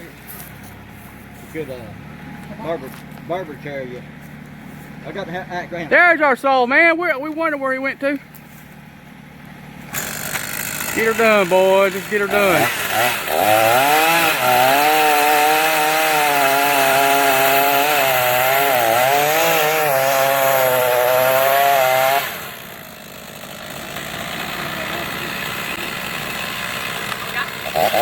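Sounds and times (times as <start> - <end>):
steady engine running: 0.0 - 28.0
chainsaw cutting wood: 7.3 - 28.0.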